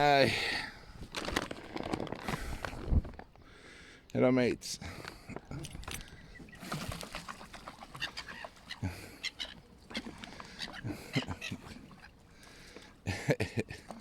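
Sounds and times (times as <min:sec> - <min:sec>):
gulls squawking: 0:06.0 - 0:12.8.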